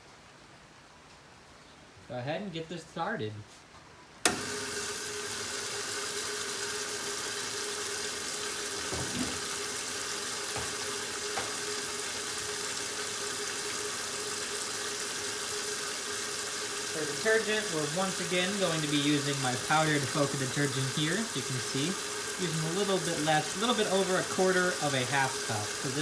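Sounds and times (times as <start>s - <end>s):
water rushing into washing machine: 4.2s - 26.0s.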